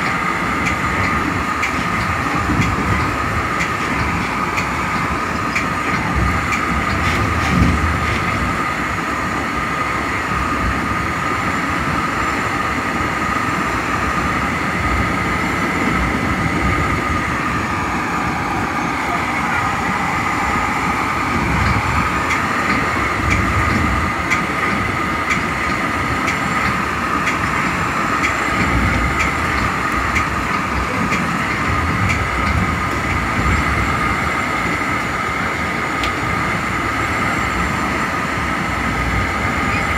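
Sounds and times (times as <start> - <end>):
wheels clicking over track: 0.0 - 9.0, 13.5 - 39.9
steady high hum: 0.0 - 39.9
train wheels rumbling on rail: 0.0 - 39.9.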